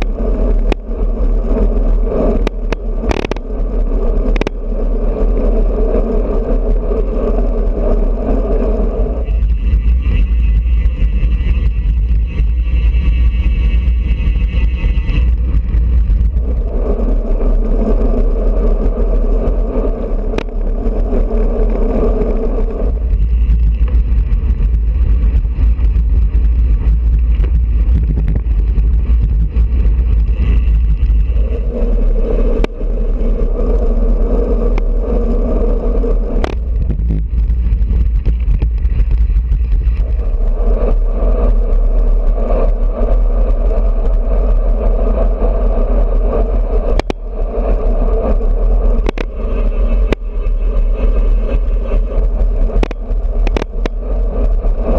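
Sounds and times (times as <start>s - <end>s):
droning hum: 0.0s - 54.9s
wind buffeting microphone: 0.0s - 54.9s.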